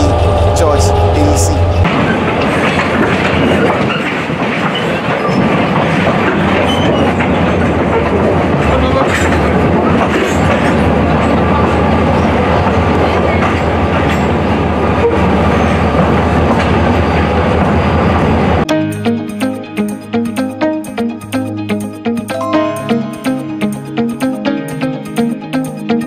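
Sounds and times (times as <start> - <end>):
low hum: 0.0 - 2.3
train wheels rumbling on rails: 0.0 - 18.6.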